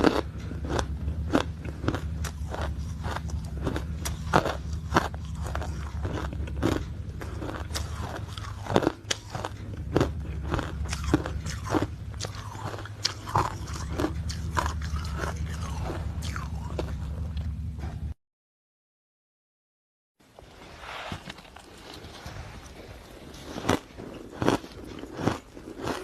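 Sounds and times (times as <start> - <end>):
person crunching ice: 0.0 - 17.0, 23.2 - 26.0
steady low hum: 0.0 - 18.2, 21.2 - 26.0.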